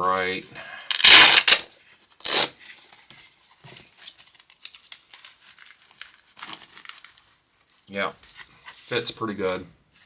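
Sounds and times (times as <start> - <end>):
velcro strap ripping: 0.9 - 2.6.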